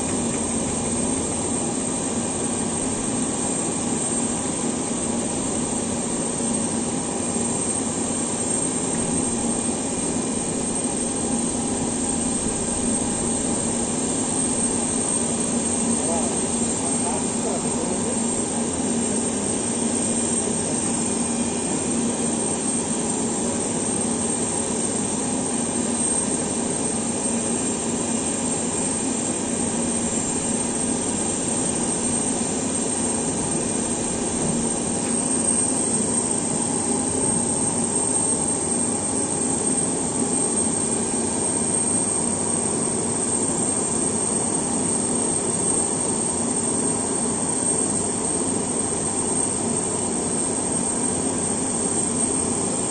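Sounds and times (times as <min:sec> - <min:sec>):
aircraft turbine whining: 0:00.0 - 0:41.9.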